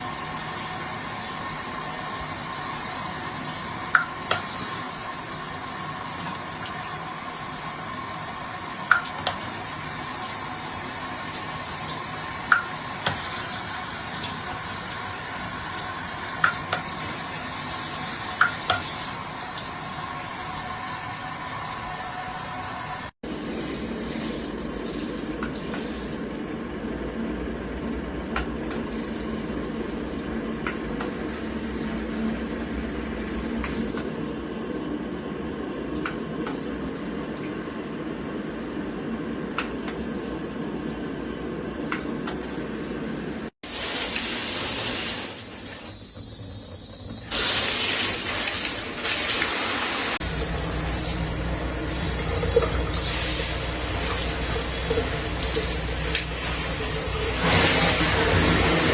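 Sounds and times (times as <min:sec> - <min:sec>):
water spraying from shower head: 0:43.7 - 0:58.9.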